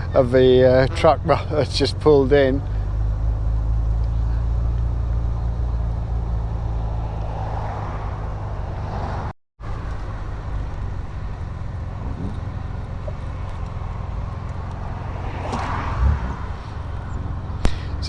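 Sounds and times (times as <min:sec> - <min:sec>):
car engine running: 0:00.0 - 0:18.0
road noise: 0:00.0 - 0:18.0.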